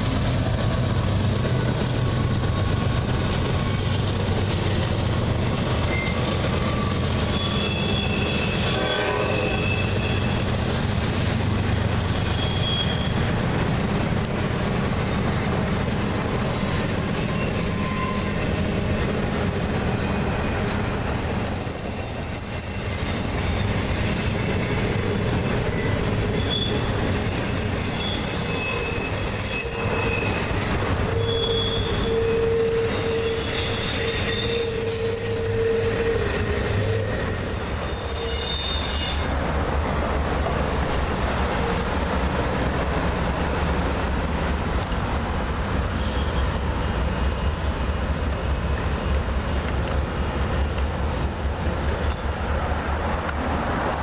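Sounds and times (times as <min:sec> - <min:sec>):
freight train cars rumbling on rails: 0:00.0 - 0:54.0
wheel flanges squealing: 0:04.7 - 0:10.5, 0:12.1 - 0:13.2, 0:15.7 - 0:24.9, 0:25.7 - 0:39.4.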